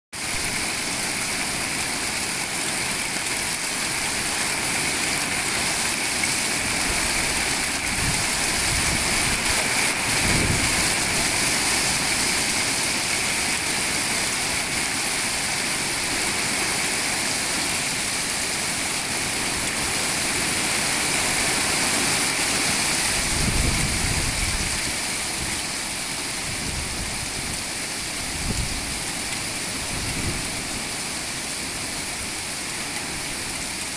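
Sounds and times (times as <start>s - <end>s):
hail and rain pelting down: 0.2s - 33.9s.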